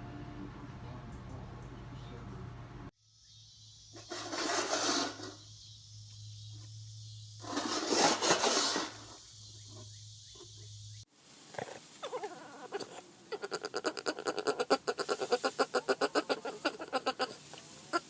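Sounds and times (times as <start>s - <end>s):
dog growling: 11.6s - 17.3s.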